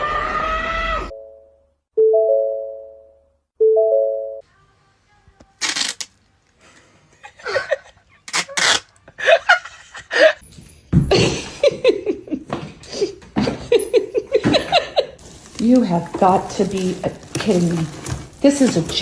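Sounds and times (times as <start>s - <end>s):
person laughing: 7.2s - 10.4s, 11.1s - 15.2s.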